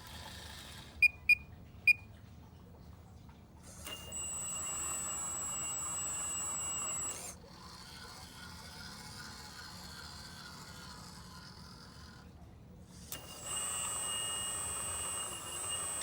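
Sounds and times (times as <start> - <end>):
excavator whine and hum: 3.6 - 16.0.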